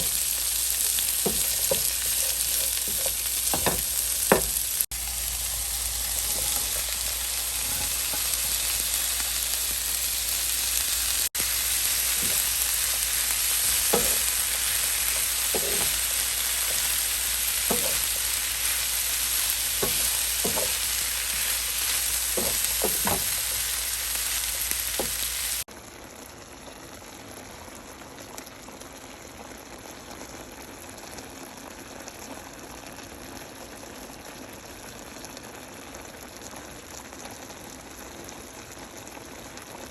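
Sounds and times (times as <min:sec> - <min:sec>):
food sizzling in a pan: 0:00.0 - 0:26.0
stirring scrapes: 0:01.2 - 0:03.8, 0:15.1 - 0:16.1.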